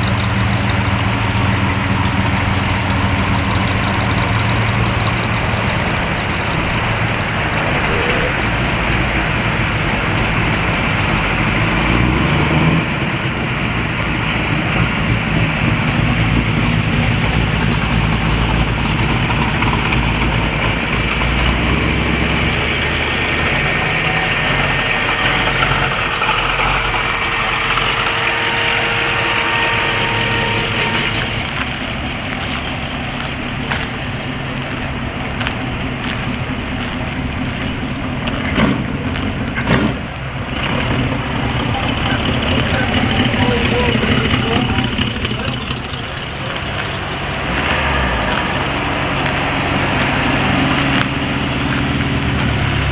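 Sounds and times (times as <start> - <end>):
car engines idling: 0.0 - 52.9.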